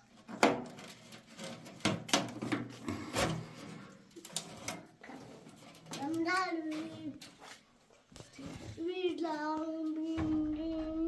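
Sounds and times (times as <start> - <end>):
stove parts knocking and scraping: 0.0 - 7.6.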